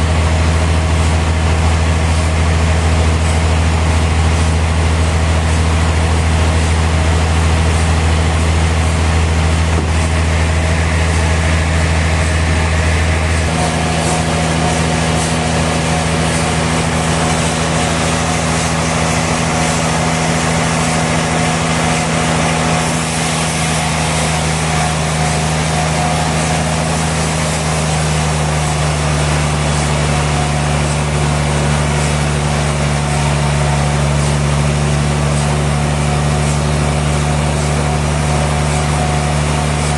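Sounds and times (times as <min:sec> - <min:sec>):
sawmill machinery humming: 0:00.0 - 0:39.9
high hiss: 0:13.4 - 0:39.0.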